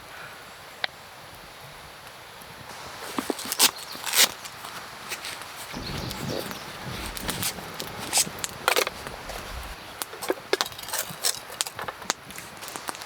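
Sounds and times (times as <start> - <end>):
camp gear clicks and rustles: 2.7 - 13.0.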